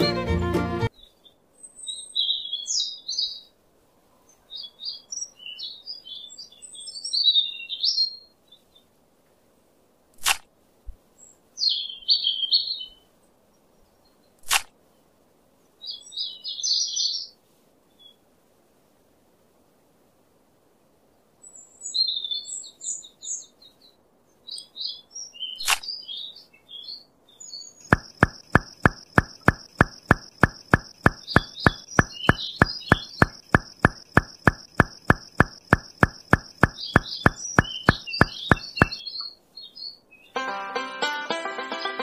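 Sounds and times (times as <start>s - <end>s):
sharp click: 10.2s - 10.4s, 14.4s - 14.7s, 25.6s - 25.8s, 27.9s - 39.0s
birds chirping: 27.8s - 39.2s
regular beat: 27.9s - 39.0s.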